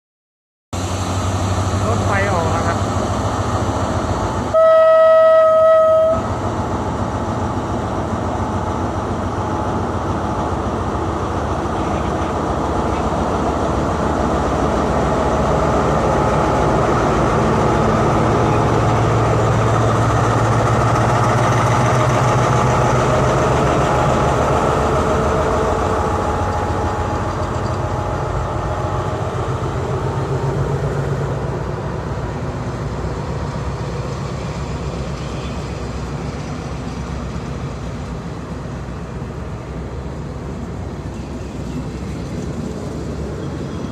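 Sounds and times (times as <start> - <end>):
train rumbling: 0.8 - 43.9
train horn: 4.5 - 6.4.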